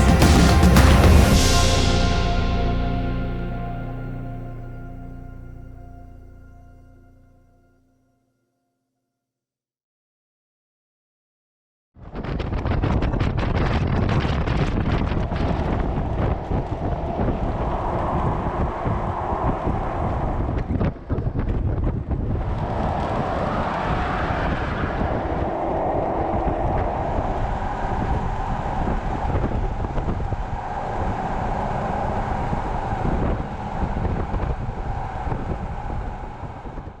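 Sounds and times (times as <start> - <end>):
wind buffeting microphone: 12.0 - 37.0.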